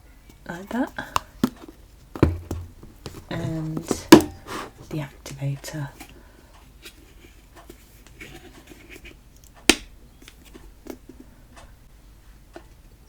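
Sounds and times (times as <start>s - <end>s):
plastic containers clicking and tapping: 0.7s - 5.4s.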